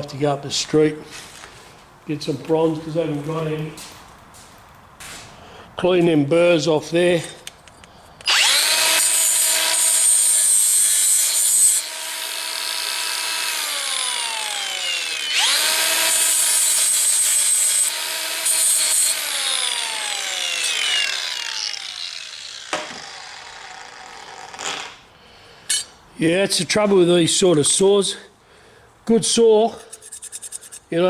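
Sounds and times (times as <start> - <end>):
electric grinder grinding metal: 8.3 - 24.8, 29.8 - 30.9.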